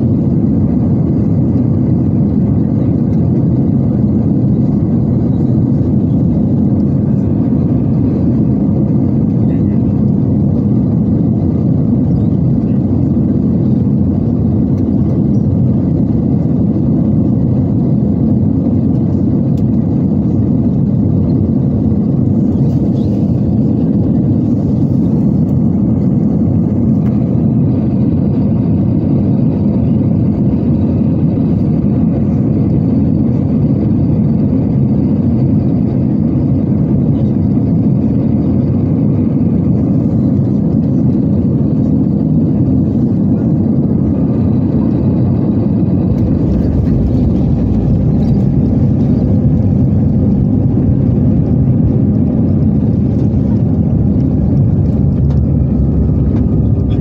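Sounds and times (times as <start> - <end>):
airflow rush in aircraft cabin: 0.0 - 57.0
jet engines humming: 0.0 - 57.0.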